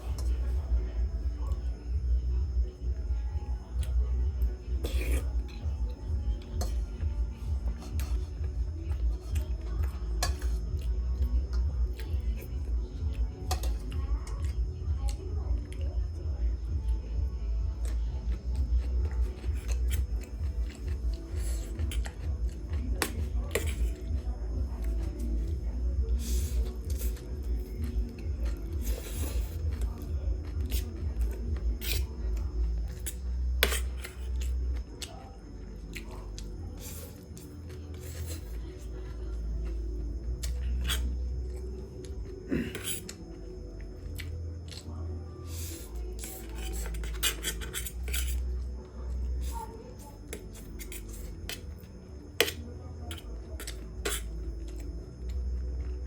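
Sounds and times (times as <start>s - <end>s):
wet chewing and smacking: 17.6s - 35.3s, 44.0s - 45.0s.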